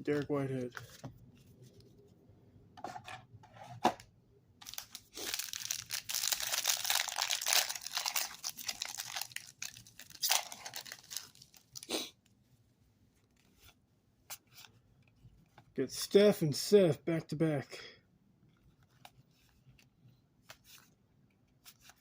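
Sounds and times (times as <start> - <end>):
foil wrapper tearing and crinkling: 4.6 - 11.9.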